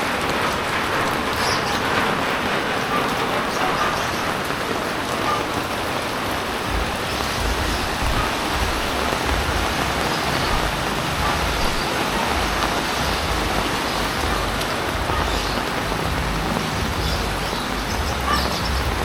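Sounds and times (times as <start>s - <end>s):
heavy rain: 0.0s - 19.0s.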